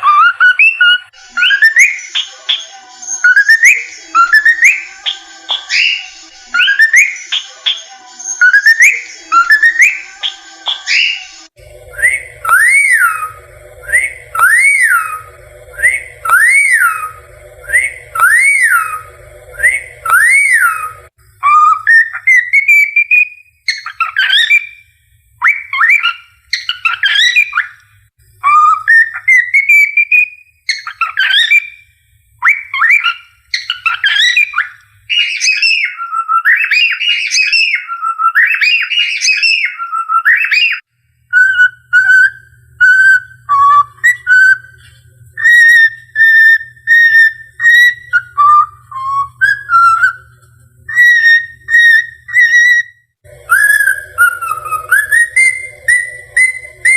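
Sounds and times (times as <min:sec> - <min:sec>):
cockatiel whistling a tune: 0:00.0 - 0:56.9
low hum: 0:11.6 - 0:21.1, 0:41.1 - 0:56.9.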